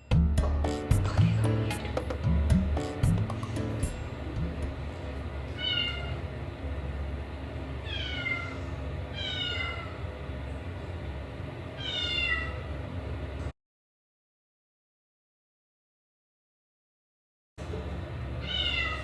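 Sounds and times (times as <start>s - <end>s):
kitten meowing: 5.6s - 6.2s, 7.8s - 10.0s, 11.8s - 12.6s, 18.4s - 19.0s.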